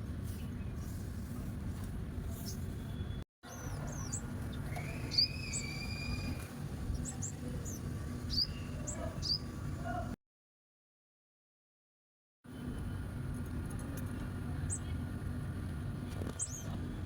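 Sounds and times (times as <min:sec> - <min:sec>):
whistled bird notes: 0:02.9 - 0:06.4
small birds chirping: 0:03.5 - 0:10.1, 0:16.3 - 0:16.8.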